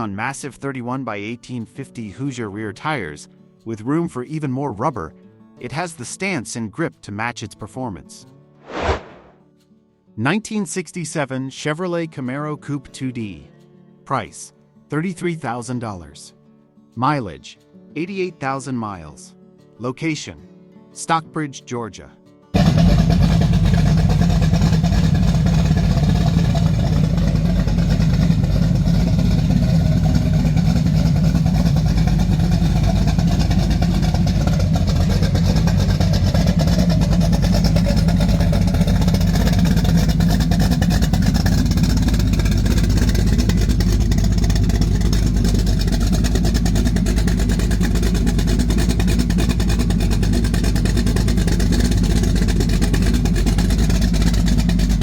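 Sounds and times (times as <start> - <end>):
car engine running steadily: 22.6 - 55.0.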